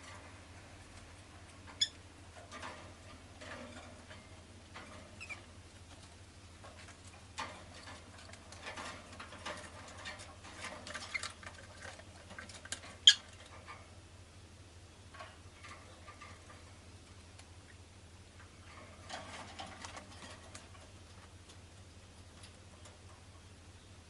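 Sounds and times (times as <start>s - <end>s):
lovebird chirping and clicking: 1.7s - 2.0s, 12.8s - 13.4s.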